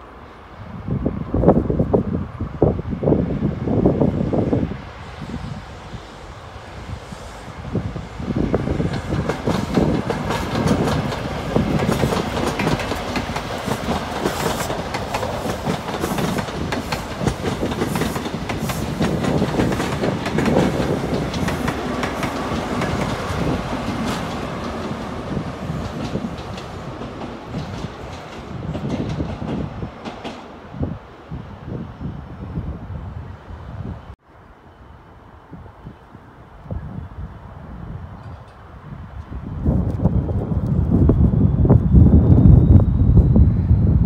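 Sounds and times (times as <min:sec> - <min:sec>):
train wheels clattering over rail joints: 0:08.8 - 0:30.5.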